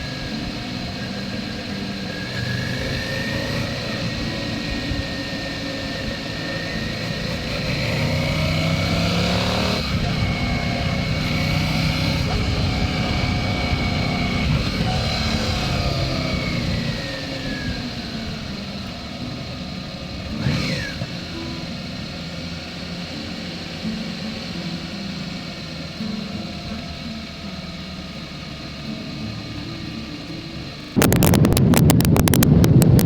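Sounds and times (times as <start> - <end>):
vehicle passing by: 0.0 - 19.4
road noise: 0.0 - 33.0
vehicle engine running: 0.0 - 33.0.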